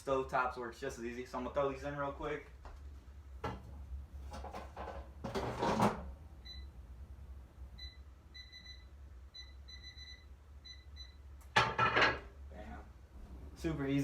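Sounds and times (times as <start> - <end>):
air fryer control panel beeping: 7.8 - 11.2.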